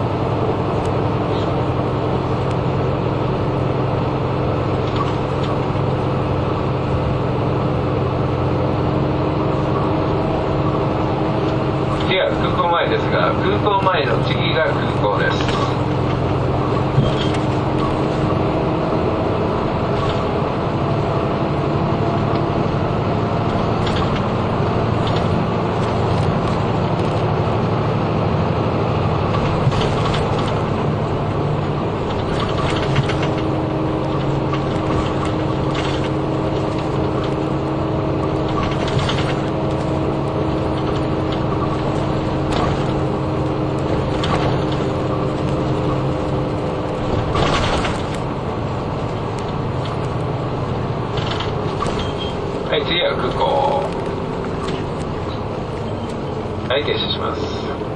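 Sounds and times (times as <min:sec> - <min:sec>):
bus diesel engine running: 0:00.0 - 0:57.9
interior rattles and clicks: 0:00.0 - 0:57.9
road noise: 0:00.0 - 0:57.9.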